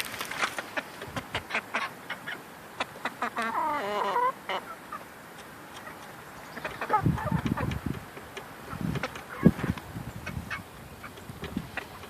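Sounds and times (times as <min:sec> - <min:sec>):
chickens clucking: 0:00.0 - 0:12.0
chicken drawn-out call: 0:00.4 - 0:05.1.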